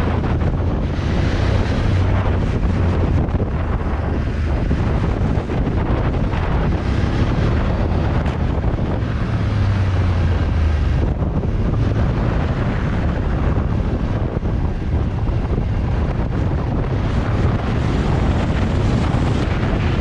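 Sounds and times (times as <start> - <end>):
motorcycle engine humming: 0.0 - 20.0
wind rushing over microphone: 0.0 - 20.0.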